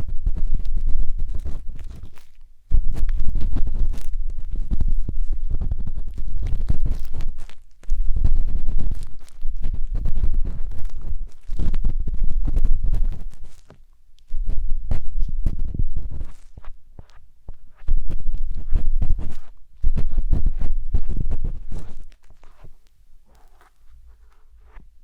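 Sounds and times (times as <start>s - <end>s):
scratchy scraping on microphone: 0.0s - 25.0s.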